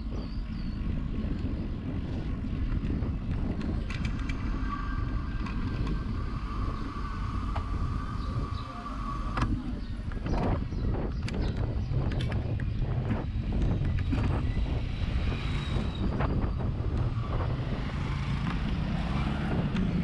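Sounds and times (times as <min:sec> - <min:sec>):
road noise: 0:00.0 - 0:20.0
wind buffeting microphone: 0:00.0 - 0:20.0.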